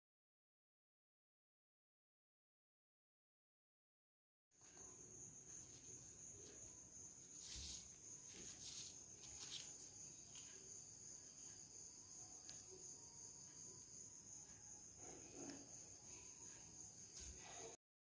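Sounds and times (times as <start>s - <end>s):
cricket chirring: 4.6s - 17.8s
soft rustles and taps: 7.4s - 10.6s.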